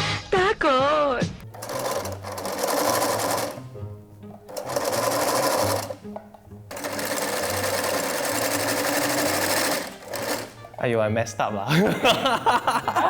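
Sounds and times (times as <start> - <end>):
sewing machine stitching: 1.4 - 10.8.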